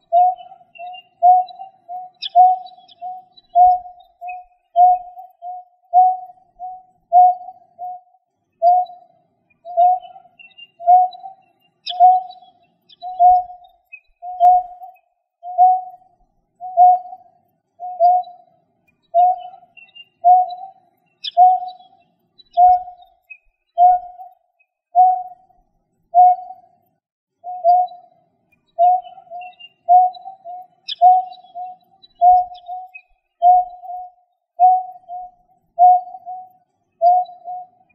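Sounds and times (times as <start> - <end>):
bird hooting: 0.0 - 8.0, 9.7 - 12.4, 13.0 - 14.8, 16.6 - 17.2, 19.2 - 21.8, 26.2 - 26.6, 28.8 - 37.8
faint high chirps: 0.0 - 37.9.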